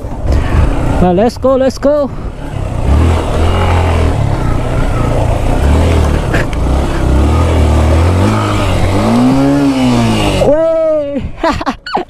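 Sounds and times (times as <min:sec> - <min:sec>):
motorcycle engine riding off: 0:02.4 - 0:10.6.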